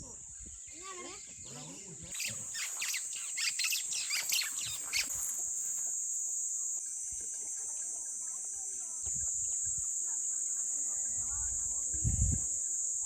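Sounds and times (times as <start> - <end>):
birds chirping: 0.3 - 10.0
high-pitched insect drone: 2.1 - 13.0.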